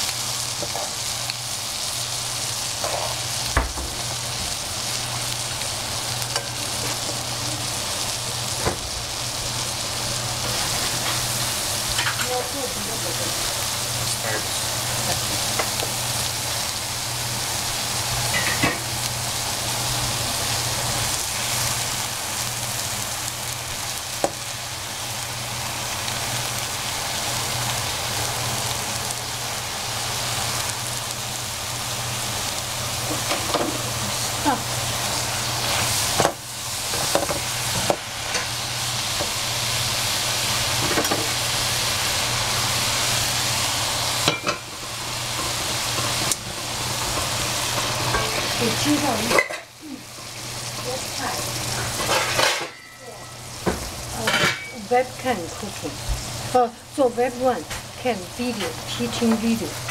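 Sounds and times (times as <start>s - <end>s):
food sizzling in a pan: 0.0s - 59.9s.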